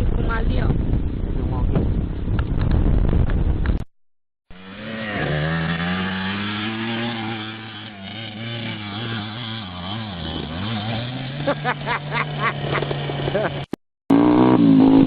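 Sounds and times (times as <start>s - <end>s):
motorcycle engine at low revs: 4.5s - 15.0s.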